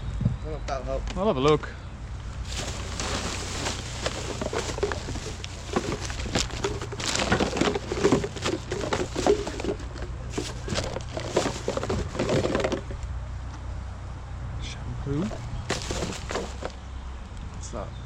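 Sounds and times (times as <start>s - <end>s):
plastic bags rustling: 2.3s - 13.0s, 15.3s - 16.8s.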